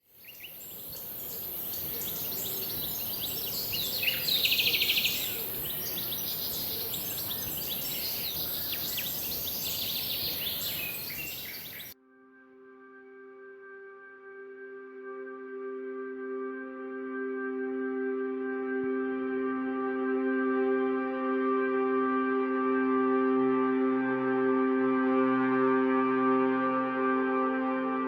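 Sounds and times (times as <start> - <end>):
wild birds chirping: 0.0 - 12.0
steady high-pitched hiss: 0.1 - 12.0
bird rapid trill: 0.2 - 12.0.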